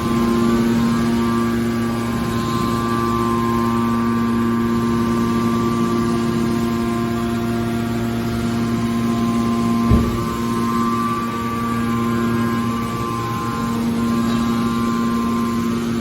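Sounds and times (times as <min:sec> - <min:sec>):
hydraulic pump motor humming: 0:00.0 - 0:16.0
low thud: 0:09.9 - 0:10.8.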